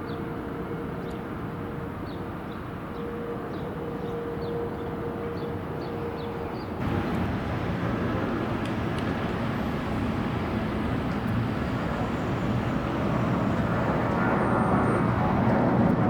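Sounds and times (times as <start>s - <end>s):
jet airliner engines rumbling: 0.0s - 16.0s.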